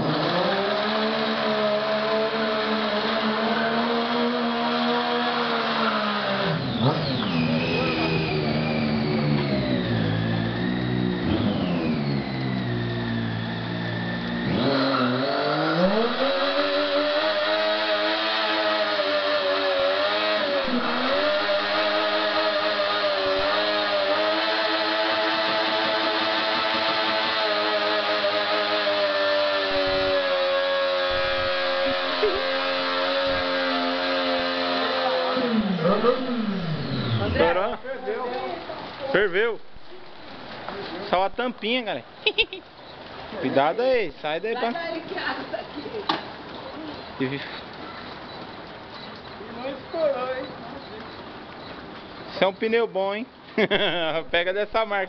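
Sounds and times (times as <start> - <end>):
motorcycle engine revving high: 0.0 - 42.4.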